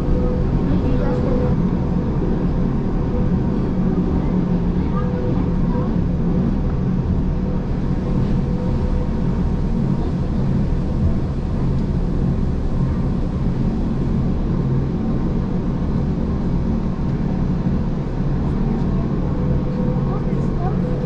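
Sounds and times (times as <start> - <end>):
train motors humming: 0.0 - 21.0.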